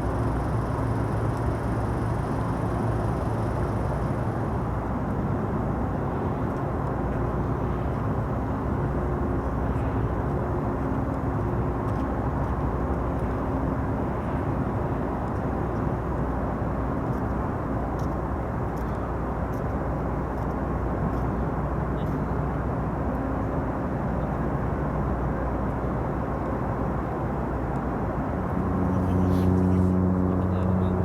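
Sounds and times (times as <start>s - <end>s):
constant hum tones: 0.0s - 31.0s
low machinery rumble: 27.5s - 31.0s.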